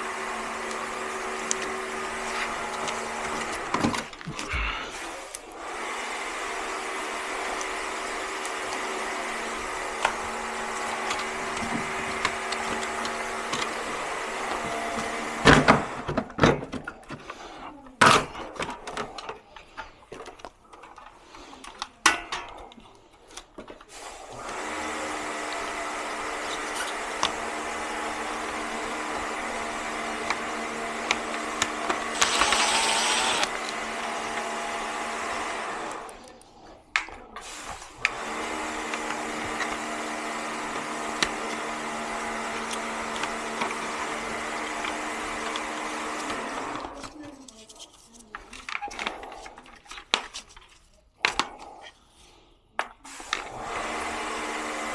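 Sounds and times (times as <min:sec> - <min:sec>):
electric machine humming: 0:00.0 - 0:03.8, 0:25.9 - 0:36.0
loud hiss: 0:32.1 - 0:33.5.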